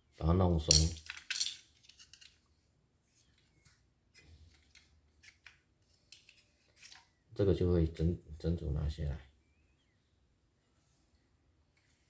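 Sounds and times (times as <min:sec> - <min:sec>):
faint clicks and scrapes: 0:03.1 - 0:07.2.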